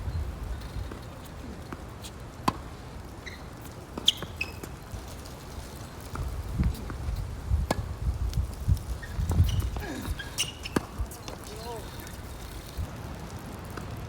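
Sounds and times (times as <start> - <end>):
wind rumbling on microphone: 0.0 - 1.6, 4.9 - 14.0
tennis ball bouncing on court: 0.8 - 5.3, 6.0 - 7.0, 7.6 - 7.9, 9.0 - 12.3
shoe squeaks: 3.2 - 7.8, 8.7 - 12.9.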